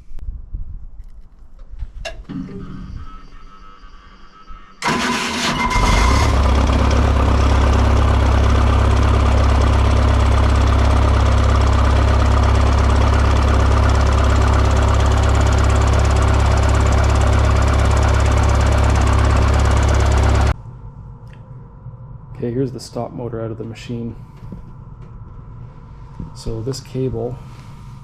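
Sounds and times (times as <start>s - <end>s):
diesel engine running: 2.3s - 20.6s.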